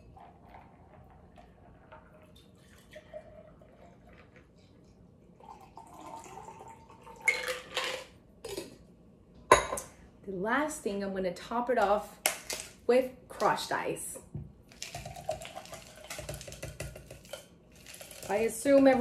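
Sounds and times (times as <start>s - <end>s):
liquid trickling: 0.2s - 7.3s, 14.7s - 16.3s
ice clattering in shaker: 14.7s - 19.0s.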